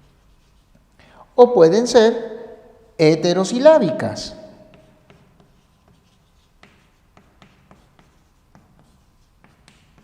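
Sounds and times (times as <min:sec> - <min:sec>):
pen tapping and scratching: 0:04.7 - 0:10.0.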